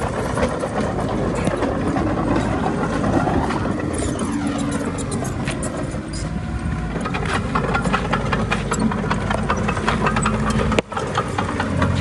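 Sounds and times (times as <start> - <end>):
bulldozer diesel engine clattering: 0.0 - 12.0.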